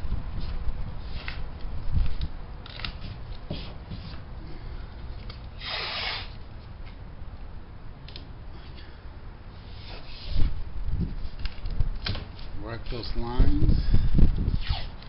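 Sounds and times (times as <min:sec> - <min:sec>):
tape ripping off roll: 0:05.5 - 0:06.4, 0:14.6 - 0:15.0.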